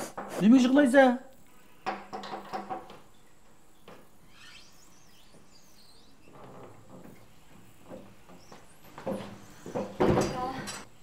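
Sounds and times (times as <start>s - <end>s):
faint bird chirps: 3.1s - 11.0s
wooden gate scraping open: 6.2s - 7.8s.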